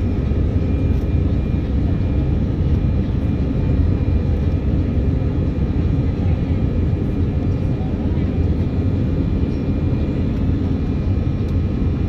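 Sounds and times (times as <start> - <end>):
faint steady whine: 0.0 - 12.0
jet engine drone in cabin: 0.0 - 12.0.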